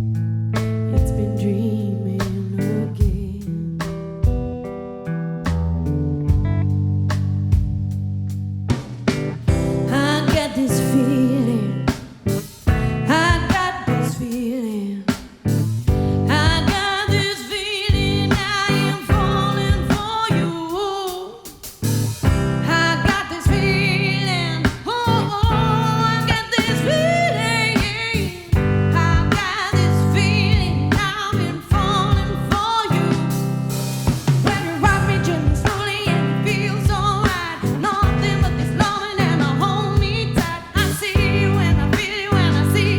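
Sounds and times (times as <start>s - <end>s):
strummed guitar chords: 0.0s - 14.3s, 15.5s - 20.6s, 21.8s - 42.9s
person singing: 0.9s - 3.7s, 9.5s - 12.0s, 12.7s - 15.1s, 15.9s - 33.5s, 34.4s - 42.9s.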